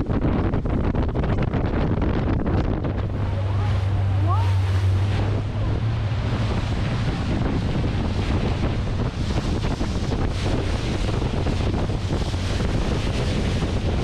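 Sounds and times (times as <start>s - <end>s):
boat engine drone: 0.0s - 14.0s
wind buffeting microphone: 0.0s - 14.0s
river water rushing: 3.0s - 10.7s.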